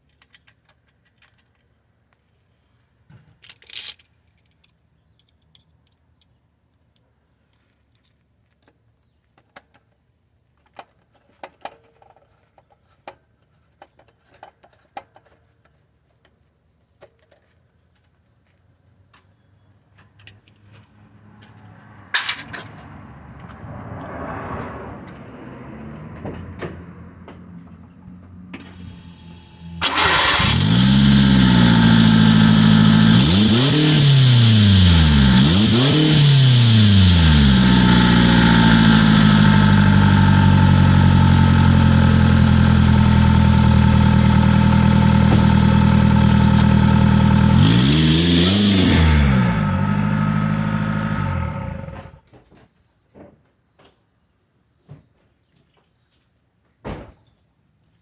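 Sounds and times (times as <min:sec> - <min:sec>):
loud engine revving: 0:29.0 - 0:52.2.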